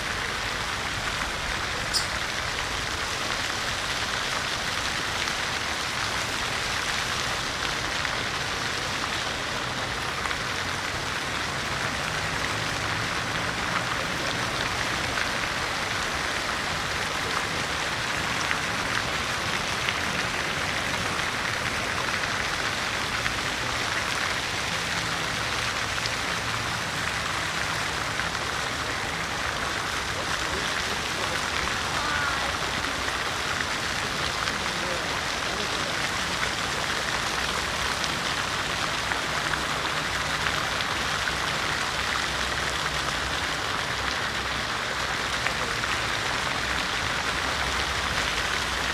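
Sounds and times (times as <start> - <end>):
fountain water splashing: 0.0 - 48.9
water droplet patter: 1.8 - 2.4.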